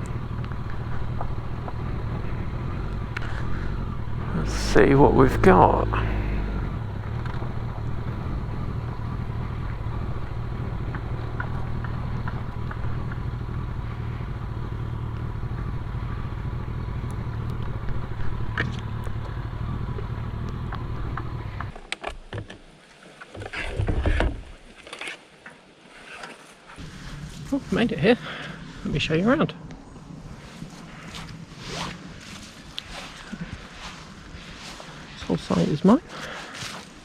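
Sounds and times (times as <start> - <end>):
small ticks: 0.0 - 4.1, 7.0 - 21.8
motorcycle engine running: 0.0 - 21.8, 26.8 - 37.0
rustle: 0.0 - 37.0
scuffs: 30.8 - 35.3, 36.0 - 37.0.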